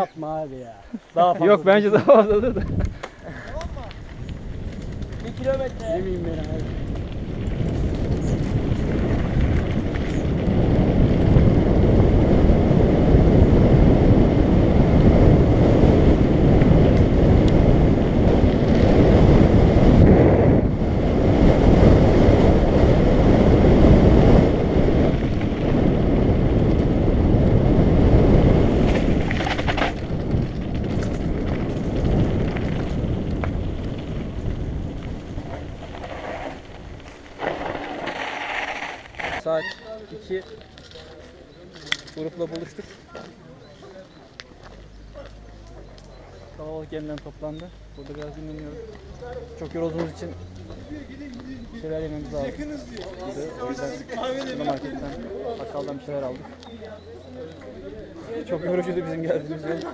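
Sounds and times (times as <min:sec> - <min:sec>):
road noise: 0:00.0 - 0:59.9
wind buffeting microphone: 0:01.5 - 0:40.9.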